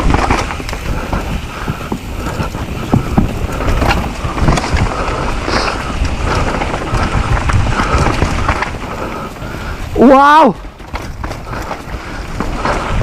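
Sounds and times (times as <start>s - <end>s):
bike knocks and rattles: 0.0s - 13.0s
tyres rolling on dirt: 0.0s - 13.0s
wind buffeting microphone: 0.0s - 13.0s.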